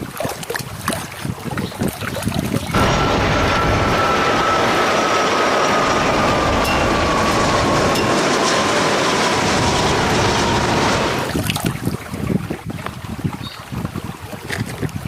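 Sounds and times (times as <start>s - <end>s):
toys splashing in water: 0.0s - 2.8s, 11.2s - 12.7s
faint falling whine: 2.8s - 11.3s.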